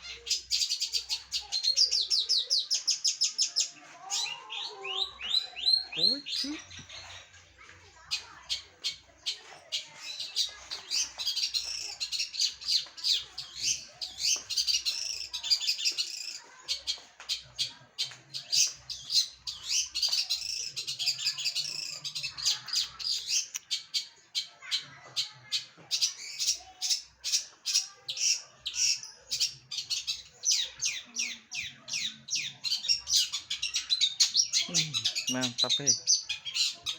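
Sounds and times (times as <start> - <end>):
bird scratchy chattering song: 8.1 - 24.5, 25.6 - 36.9.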